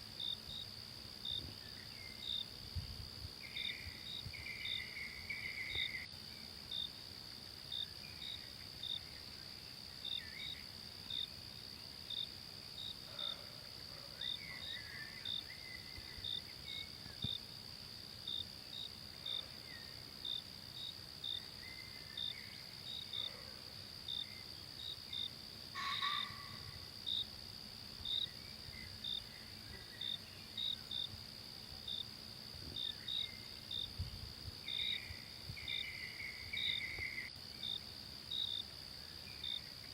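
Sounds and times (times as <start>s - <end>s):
insect high-pitched drone: 3.3s - 39.9s
short insect chirps: 3.4s - 6.9s, 28.0s - 31.1s, 32.8s - 39.9s.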